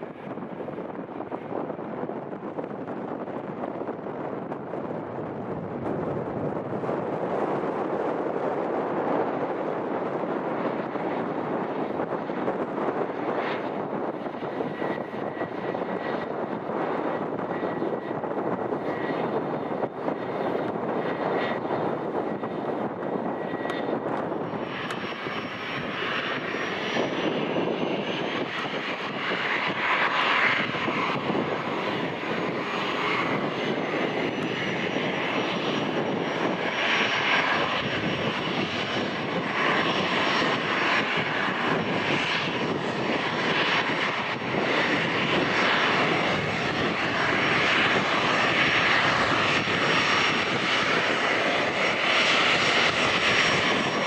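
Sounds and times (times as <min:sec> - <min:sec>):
jet engines whining: 0:00.0 - 0:54.0
wind buffeting microphone: 0:00.0 - 0:54.0.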